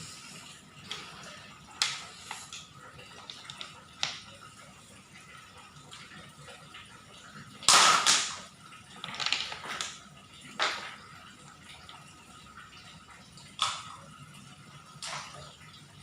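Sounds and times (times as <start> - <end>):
stones clattering against plastic toy: 3.3 - 4.2, 9.0 - 10.0.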